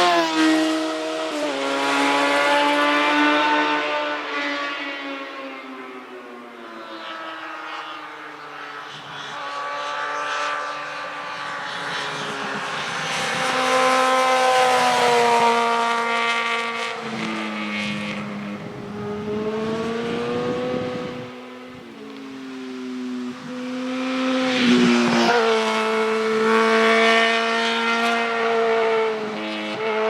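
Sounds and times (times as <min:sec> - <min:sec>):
motorcycle engine revving: 0:11.4 - 0:21.9.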